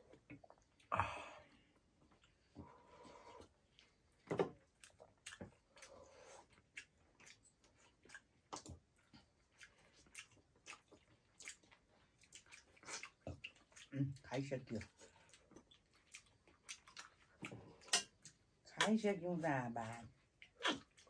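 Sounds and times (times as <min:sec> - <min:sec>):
wet mouth clicks and smacks: 0:20.4 - 0:21.0
person biting food: 0:20.6 - 0:20.9.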